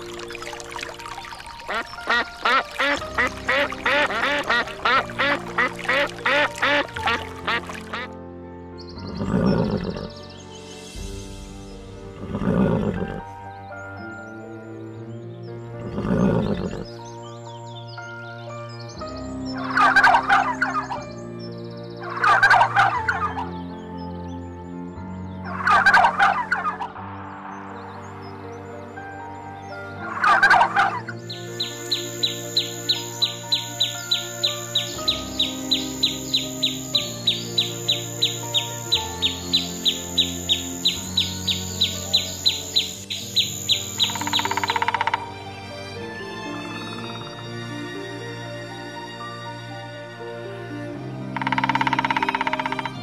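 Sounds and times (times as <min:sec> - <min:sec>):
background music: 0:00.0 - 0:53.0
turkey gobbling: 0:22.2 - 0:23.2, 0:25.6 - 0:26.7, 0:30.2 - 0:31.0.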